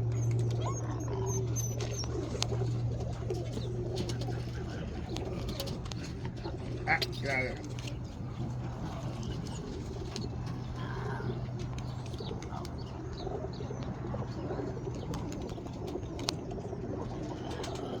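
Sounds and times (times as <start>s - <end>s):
pigeons cooing softly: 0.0s - 18.0s
steady low hum: 0.0s - 18.0s.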